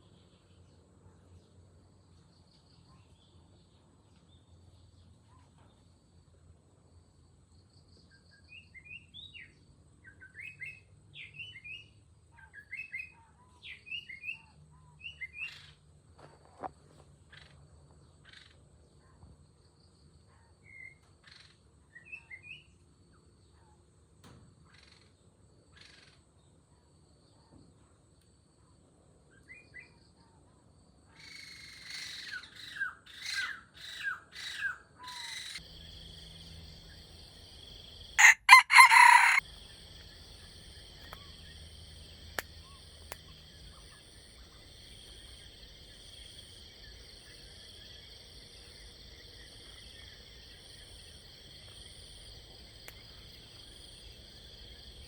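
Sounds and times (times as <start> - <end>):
insects droning: 30.7 - 55.0
small bird chirping: 31.3 - 55.0
harsh bird call: 38.2 - 39.4
sharp clicks: 42.2 - 43.7.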